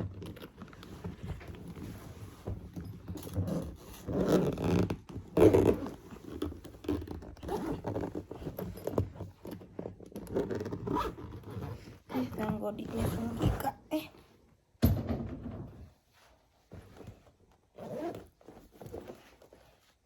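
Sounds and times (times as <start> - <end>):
bag zipper being pulled: 3.2 - 13.8, 17.7 - 19.4
bag scraping and rustling: 16.7 - 20.0.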